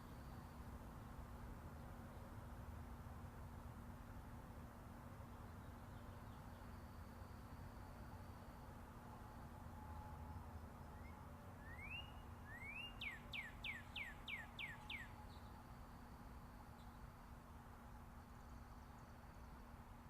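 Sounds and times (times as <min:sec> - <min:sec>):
distant highway traffic rumble: 0:00.0 - 0:20.0
songbird singing: 0:05.2 - 0:19.8.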